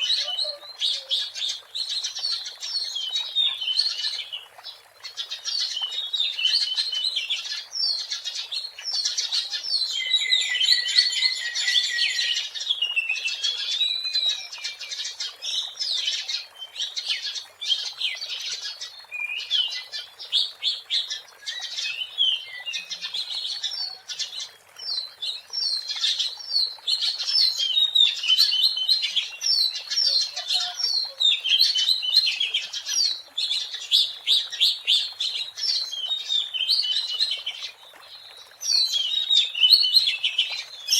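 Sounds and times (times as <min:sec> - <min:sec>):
bird singing whistles and trills: 0:09.8 - 0:14.9.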